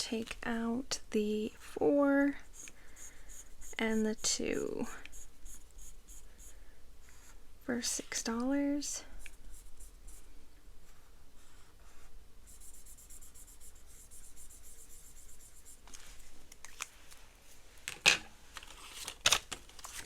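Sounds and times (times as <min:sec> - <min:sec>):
pen scratching on paper: 0:02.5 - 0:04.4, 0:11.4 - 0:15.8
paper handling: 0:18.6 - 0:20.0.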